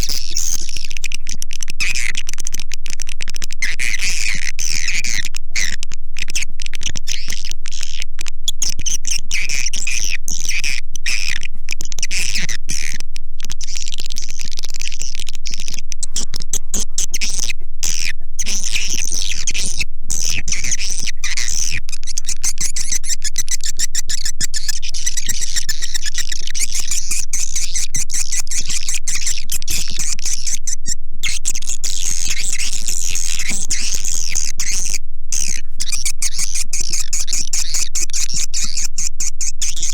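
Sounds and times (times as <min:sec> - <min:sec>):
swiftlets chattering and twittering: 0:11.2 - 0:39.9.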